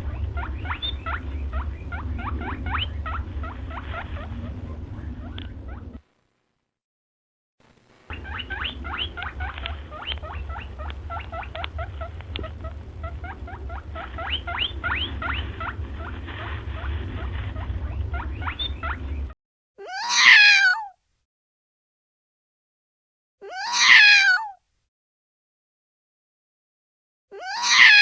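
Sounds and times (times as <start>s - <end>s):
wavering animal call: 0.0s - 6.0s, 8.1s - 20.9s, 27.4s - 28.0s
low hum: 0.0s - 6.7s, 7.6s - 19.4s
small animal squeaking chirps: 0.1s - 6.0s, 8.1s - 16.1s, 16.8s - 19.1s.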